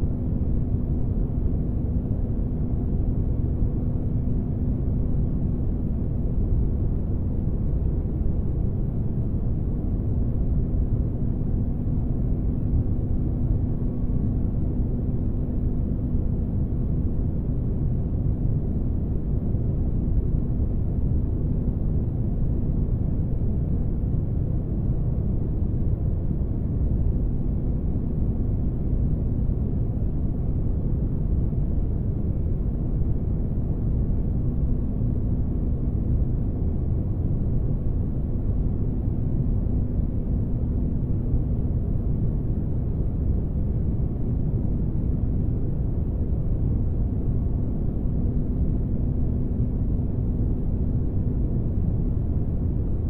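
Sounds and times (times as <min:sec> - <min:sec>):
faint hum: 0:00.0 - 0:53.0.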